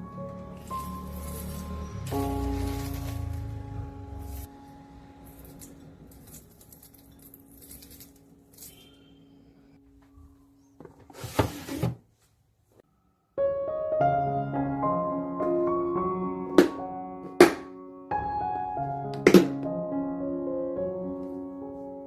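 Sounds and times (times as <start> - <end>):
soft piano music: 0.0 - 10.8, 13.2 - 22.0
kitchen handling sounds: 10.8 - 12.1.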